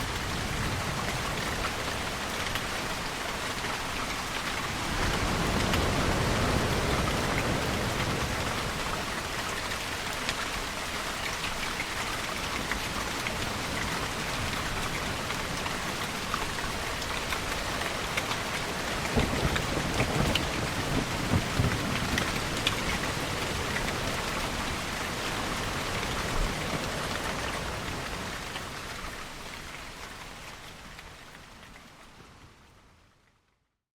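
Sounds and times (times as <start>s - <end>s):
steady rain falling: 0.0s - 33.6s
thunder rumble: 18.5s - 27.5s.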